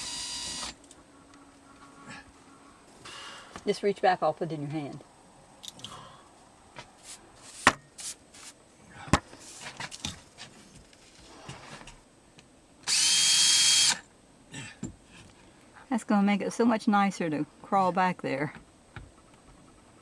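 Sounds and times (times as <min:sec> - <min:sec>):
power drill running: 0:00.0 - 0:00.8, 0:12.8 - 0:14.0.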